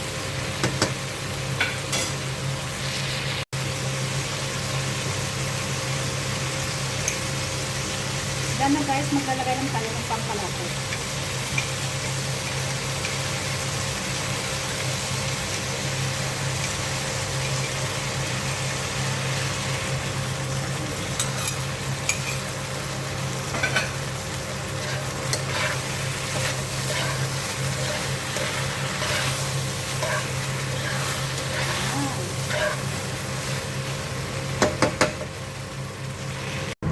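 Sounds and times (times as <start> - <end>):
stir-fry sizzling in pan: 0.0 - 36.9
spatula scraping pan: 23.5 - 33.6.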